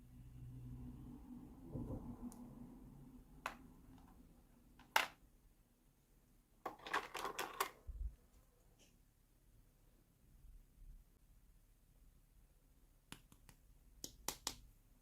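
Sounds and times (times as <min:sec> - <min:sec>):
plastic toy pieces clicking: 0:06.7 - 0:07.8.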